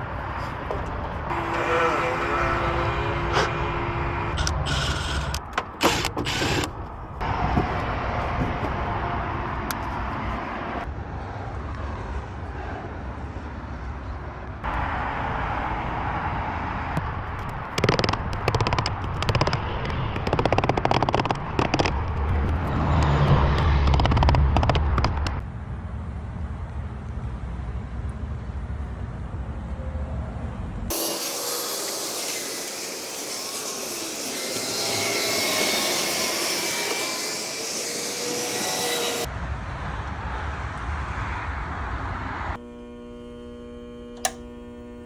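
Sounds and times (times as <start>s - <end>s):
truck engine rumbling: 0.0s - 10.3s.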